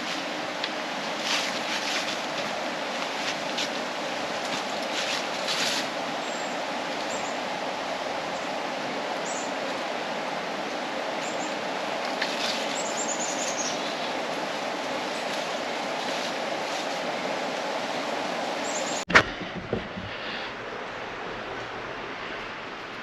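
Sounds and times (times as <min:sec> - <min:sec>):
steady rushing noise: 0:00.0 - 0:23.0
small birds chirping: 0:06.2 - 0:07.4, 0:09.2 - 0:09.7, 0:10.6 - 0:14.4, 0:18.6 - 0:19.1.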